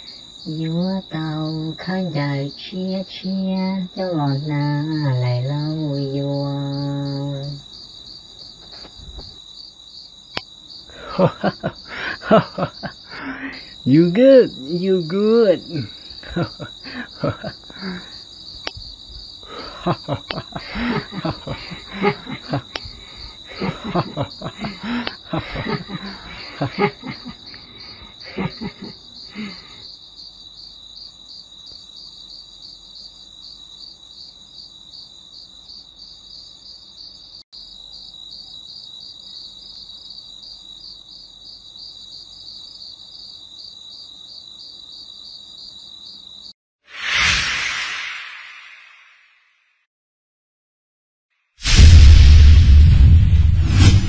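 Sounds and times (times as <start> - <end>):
crickets chirping: 0.0 - 46.6
voices: 0.5 - 7.6.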